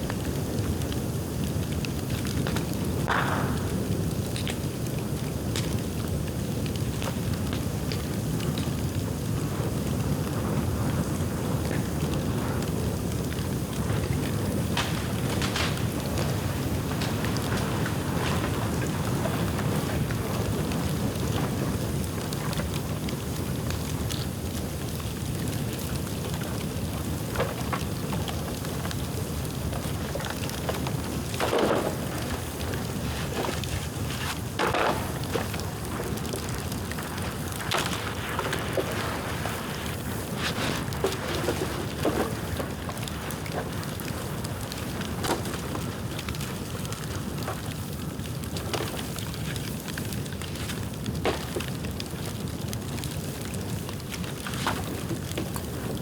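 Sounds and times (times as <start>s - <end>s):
bamboo bonfire flame rushing: 0.0s - 56.0s
bamboo cracking and popping: 13.2s - 21.5s, 25.2s - 44.4s.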